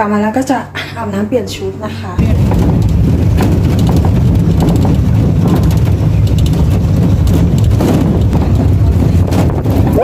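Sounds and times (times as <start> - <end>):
engine running: 2.2 - 10.0
wind buffeting microphone: 2.2 - 10.0.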